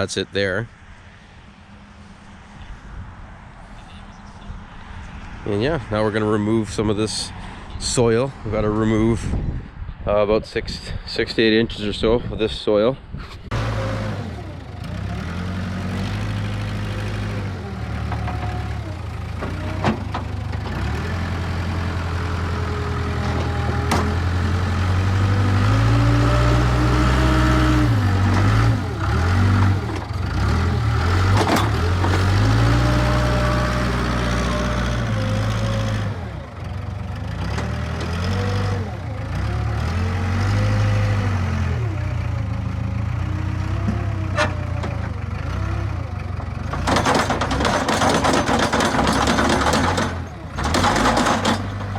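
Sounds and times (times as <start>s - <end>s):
diesel engine revving: 13.4s - 51.9s.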